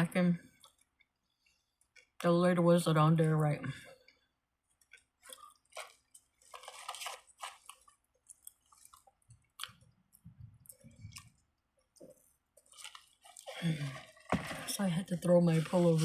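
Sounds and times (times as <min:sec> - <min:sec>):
person chewing food: 0:04.0 - 0:14.3.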